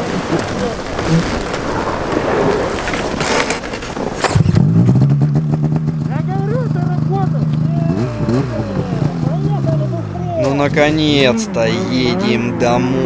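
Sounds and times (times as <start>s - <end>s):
scattered cracks: 0.0s - 6.4s
rough rumbling wind-like noise: 0.0s - 6.6s
snowmobile engine droning: 0.0s - 13.0s.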